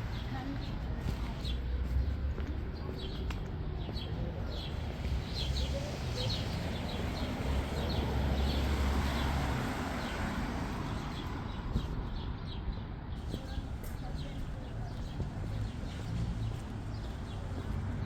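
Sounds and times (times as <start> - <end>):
low rumble of street ambience: 0.0 - 18.0
small birds chirping: 0.1 - 18.0.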